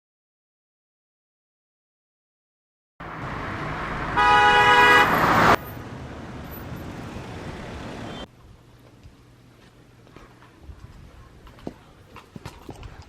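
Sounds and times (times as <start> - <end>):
road traffic noise: 3.0 - 10.6
car horn honking: 3.2 - 6.6, 7.2 - 8.3.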